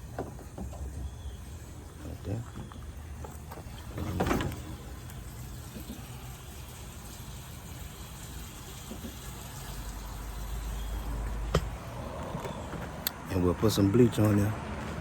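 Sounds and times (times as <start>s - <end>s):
liquid soap gushing into tank: 4.7s - 11.2s.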